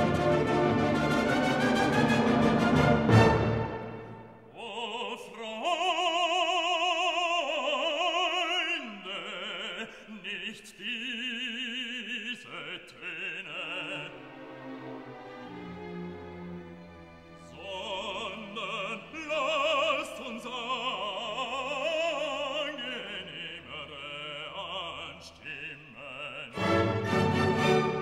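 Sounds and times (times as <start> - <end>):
operatic voice singing: 4.5 - 14.6, 17.4 - 28.0.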